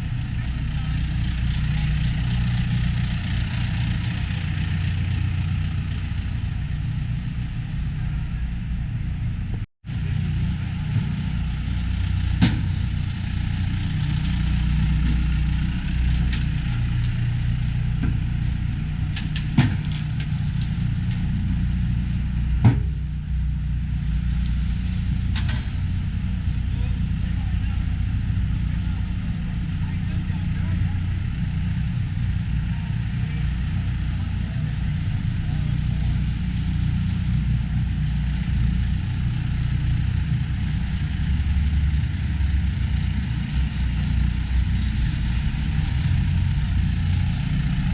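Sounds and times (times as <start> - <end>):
tractor engine idling: 0.0 - 47.9.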